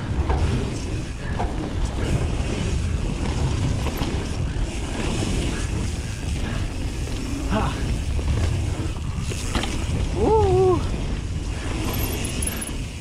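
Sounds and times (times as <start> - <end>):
bike knocks and rattles: 0.0 - 13.0
tyres rumbling on dirt: 0.0 - 13.0
wind buffeting microphone: 0.0 - 13.0.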